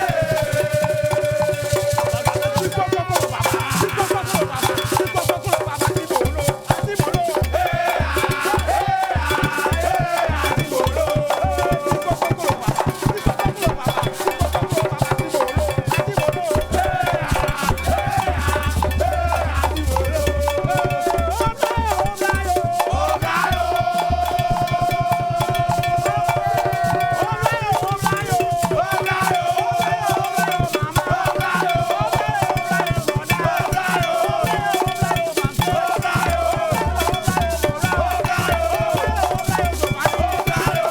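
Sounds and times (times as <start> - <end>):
rattling shaker: 0.0 - 40.9
bass drum beat: 6.5 - 12.4, 16.6 - 25.4.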